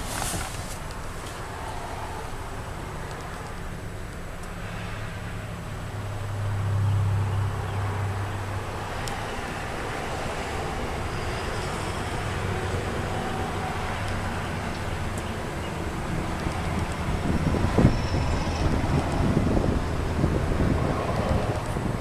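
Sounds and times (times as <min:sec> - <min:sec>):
road and wind noise: 0:00.0 - 0:22.0
car engine hum: 0:05.3 - 0:22.0.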